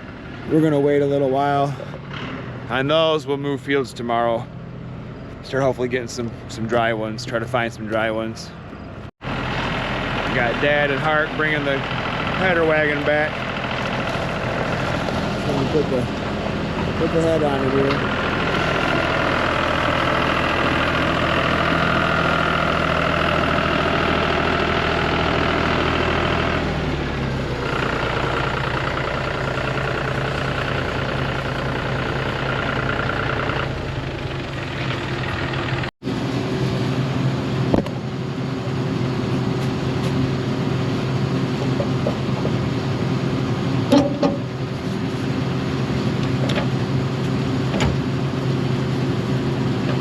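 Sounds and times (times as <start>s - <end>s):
diesel engine running: 0.0s - 50.0s
high whine: 27.0s - 50.0s.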